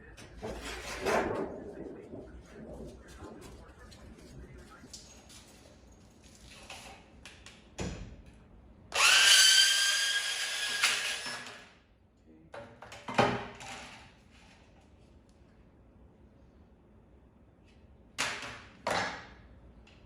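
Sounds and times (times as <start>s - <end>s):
power drill spinning: 8.9s - 11.6s.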